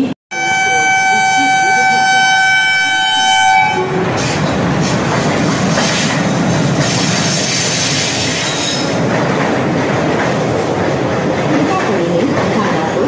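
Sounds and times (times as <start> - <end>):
train rumbling through station: 0.0 - 13.0
locomotive horn: 0.3 - 4.3
wheels clattering over rail joints: 4.0 - 13.0.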